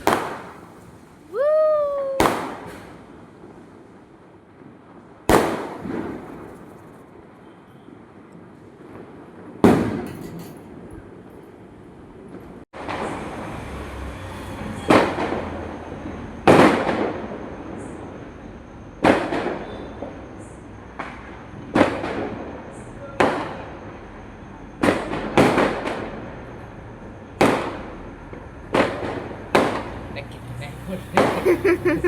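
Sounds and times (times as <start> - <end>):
firecrackers banging with echo: 0.0 - 1.2, 2.2 - 7.4, 8.8 - 10.1, 16.4 - 18.1, 19.0 - 19.7, 21.0 - 22.6, 24.8 - 26.3, 27.4 - 29.9, 31.1 - 31.6.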